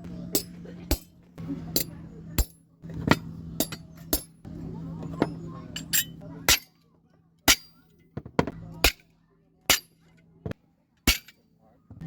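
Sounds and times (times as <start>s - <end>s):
small hammer striking steel: 0.3s - 1.2s, 1.8s - 4.4s, 5.8s - 6.8s, 7.5s - 7.8s, 8.4s - 9.1s, 9.7s - 10.1s, 11.0s - 11.4s.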